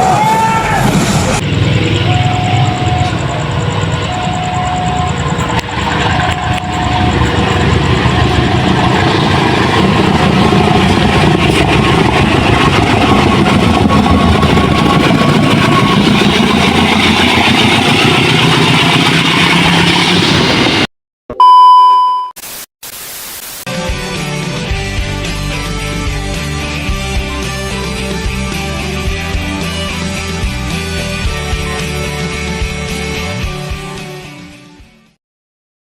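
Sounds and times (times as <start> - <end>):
train engine and rail noise: 0.0 - 20.8
loud electronic beep: 1.5 - 9.2, 21.3 - 22.4.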